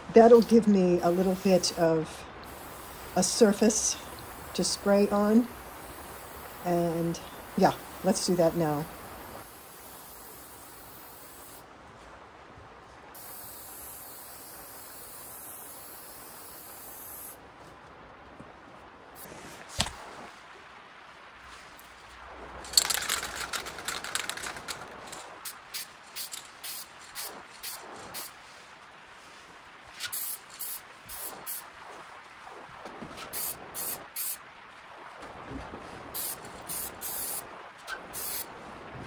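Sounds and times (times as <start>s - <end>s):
aerosol can spraying: 2.5s - 4.9s, 9.4s - 11.6s, 13.2s - 17.4s, 22.8s - 28.3s, 30.0s - 31.6s, 33.3s - 34.4s, 36.2s - 37.4s, 38.2s - 38.5s.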